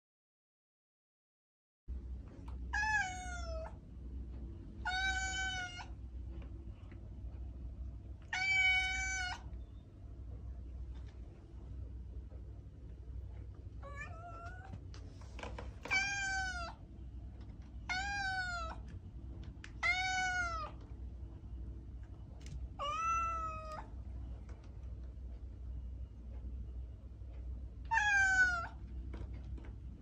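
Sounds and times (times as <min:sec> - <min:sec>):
steady low hum: 0:01.9 - 0:30.0
cat meowing: 0:02.7 - 0:03.8, 0:04.8 - 0:06.0, 0:08.2 - 0:09.5, 0:13.8 - 0:14.8, 0:15.8 - 0:16.8, 0:17.8 - 0:18.8, 0:19.8 - 0:20.8, 0:22.8 - 0:23.9, 0:27.9 - 0:28.8.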